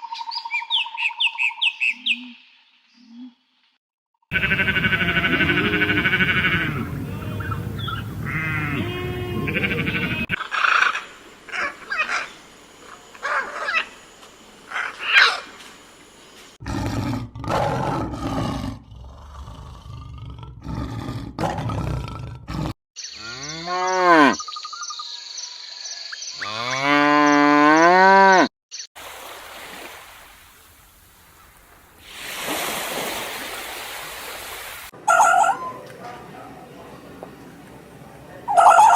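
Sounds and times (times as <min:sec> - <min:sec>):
animal calls: 0:04.3 - 0:14.0, 0:14.7 - 0:15.6, 0:35.0 - 0:36.4, 0:38.5 - 0:38.9.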